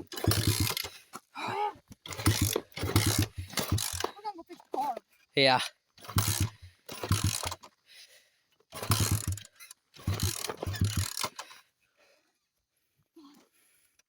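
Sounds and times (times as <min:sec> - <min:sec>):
engine turning over: 0:00.0 - 0:01.0, 0:02.0 - 0:04.2, 0:06.0 - 0:07.7, 0:08.7 - 0:11.6
dirt bike kick-start: 0:00.0 - 0:01.2, 0:01.9 - 0:04.2, 0:06.0 - 0:07.8, 0:08.7 - 0:11.6.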